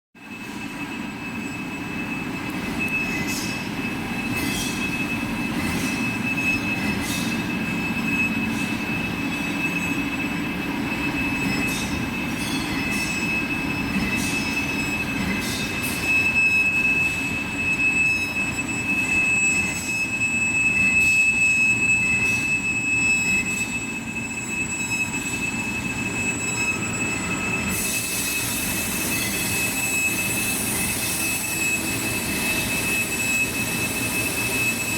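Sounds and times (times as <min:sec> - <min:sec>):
machine tool whine: 0:00.2 - 0:34.9
hiss: 0:27.7 - 0:34.9.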